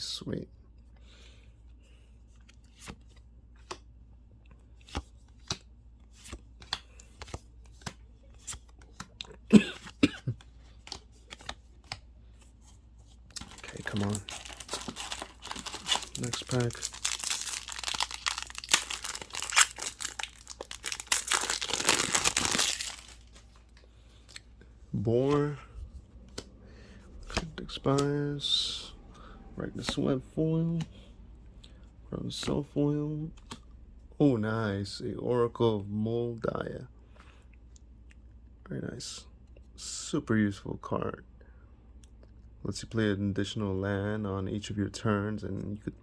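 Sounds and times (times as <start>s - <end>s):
foil wrapper crinkling and tearing: 13.3s - 23.6s.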